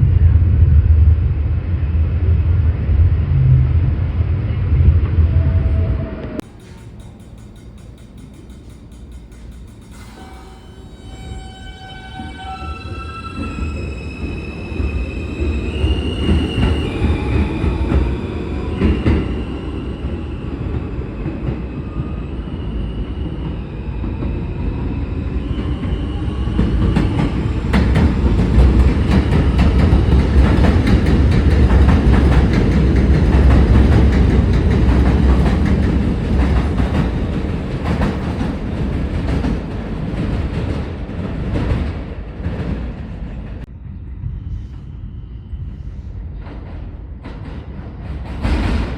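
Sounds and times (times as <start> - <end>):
train rumbling past: 0.0 - 48.9
wheels clacking over rail joints: 6.4 - 10.6
wheel squeal on rails: 6.5 - 20.2.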